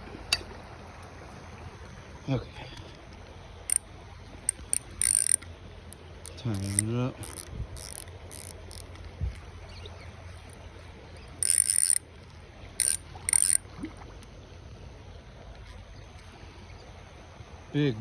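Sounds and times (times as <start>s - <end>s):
fishing reel ratcheting: 3.6s - 13.6s.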